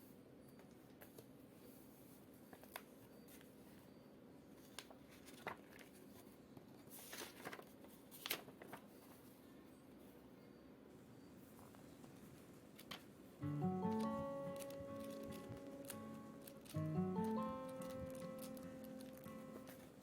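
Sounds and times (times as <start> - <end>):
objects being handled: 13.5 - 20.0.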